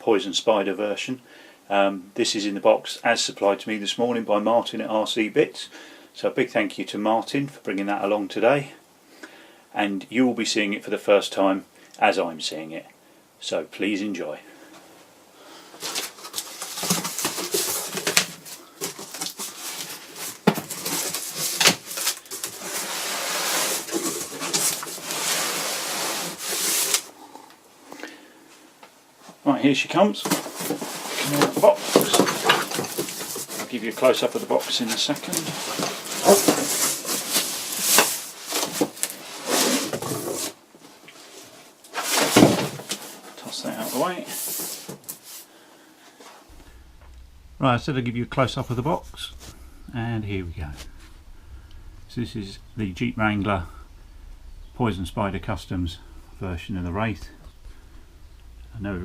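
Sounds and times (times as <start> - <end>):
cardboard rustling and scraping: 15.8 - 27.2, 30.2 - 45.5.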